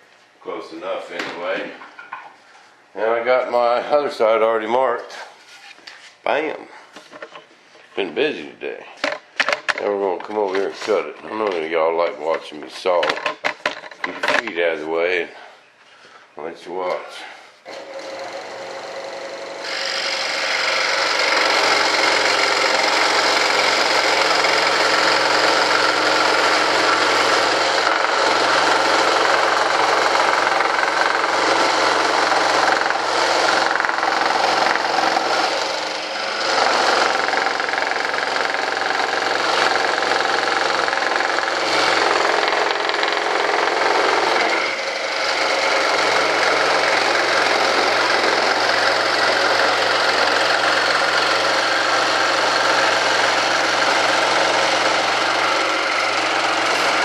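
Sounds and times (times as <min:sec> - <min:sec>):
electric saw cutting: 0:17.7 - 0:57.0.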